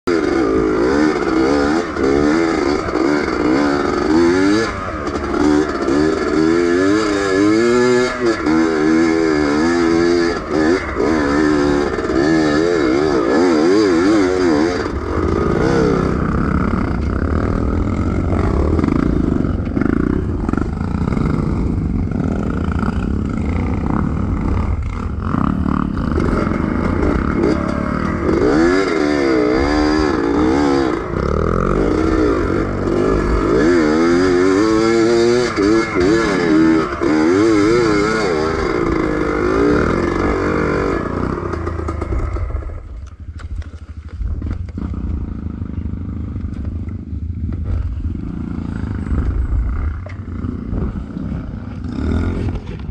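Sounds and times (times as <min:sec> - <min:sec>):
two-stroke engine revving: 0:00.1 - 0:52.9.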